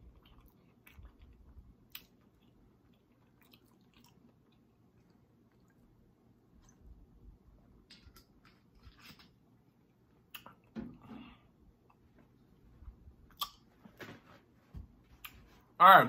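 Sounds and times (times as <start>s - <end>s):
faint mouth chewing: 0.0s - 6.0s, 10.3s - 10.7s, 13.3s - 13.6s.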